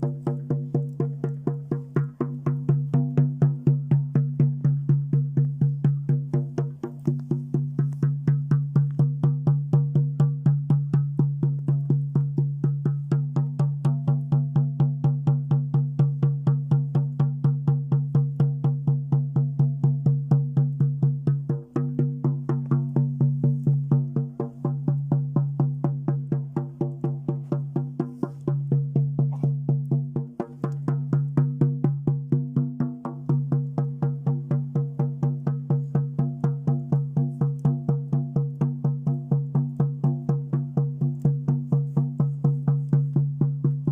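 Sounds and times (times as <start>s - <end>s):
frame drum beating: 0.0s - 43.9s.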